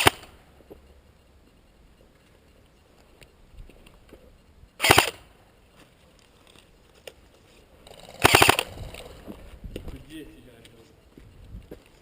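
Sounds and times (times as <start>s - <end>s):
airsoft gun full-auto bursts: 0.0s - 0.3s, 4.8s - 5.2s, 8.0s - 9.0s.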